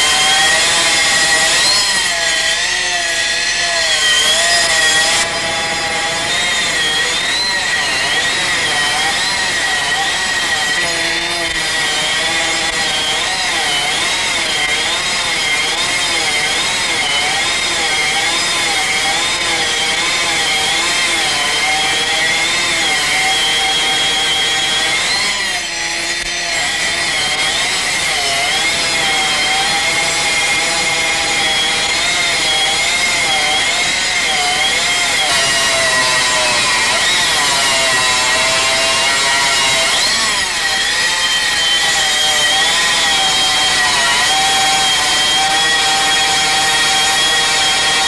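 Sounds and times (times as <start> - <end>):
stone cutting disc whining: 0.0 - 48.0.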